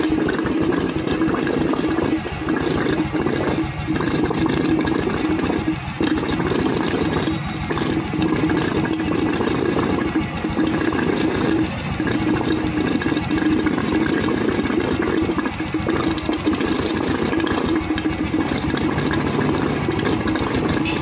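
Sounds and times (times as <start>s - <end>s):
motorcycle engine idling: 19.1s - 21.0s.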